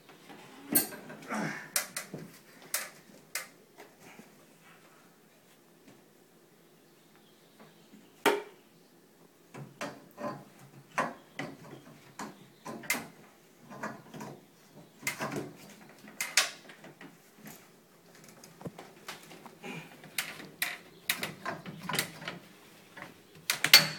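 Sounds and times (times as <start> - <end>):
tools and pipe parts clacking: 0.7 - 1.2, 15.0 - 19.4, 20.0 - 23.9.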